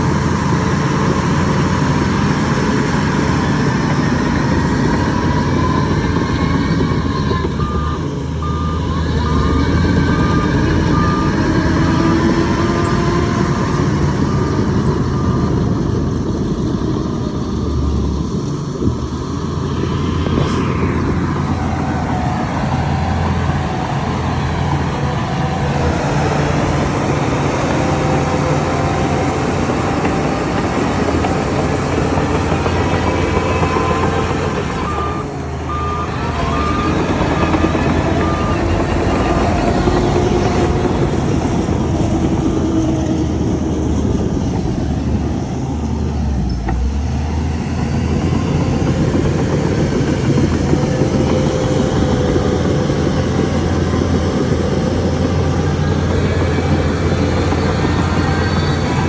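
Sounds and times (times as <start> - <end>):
heavy diesel machinery running: 0.0 - 59.0
reversing alarm beeping: 4.9 - 13.0, 31.0 - 40.4.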